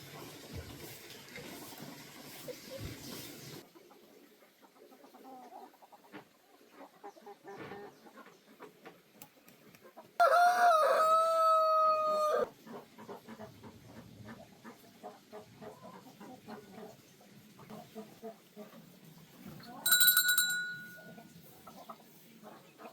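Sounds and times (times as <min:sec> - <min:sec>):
rooster crowing: 0:10.2 - 0:12.5.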